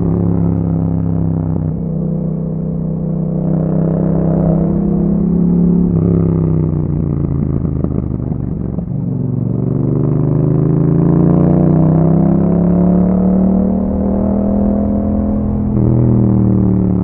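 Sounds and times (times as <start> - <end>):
motorcycle engine revving: 0.0 - 17.0
exhaust pops and crackles: 6.9 - 9.8.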